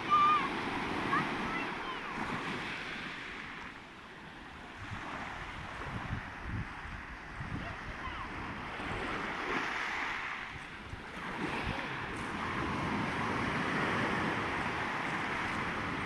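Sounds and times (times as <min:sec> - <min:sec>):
sea waves washing ashore: 0:00.0 - 0:16.0
wind on microphone: 0:04.6 - 0:16.0.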